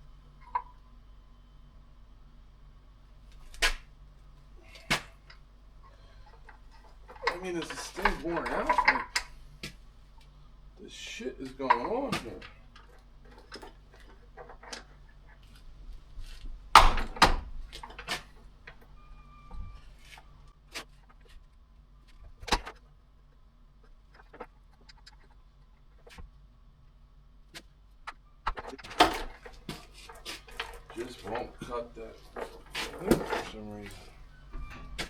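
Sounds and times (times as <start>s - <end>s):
metal chain clanks and clicks: 4.7s - 9.4s.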